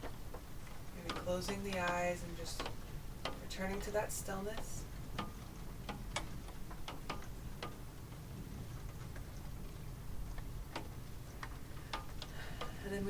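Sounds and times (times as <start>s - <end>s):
soft rain patter: 0.0s - 13.0s.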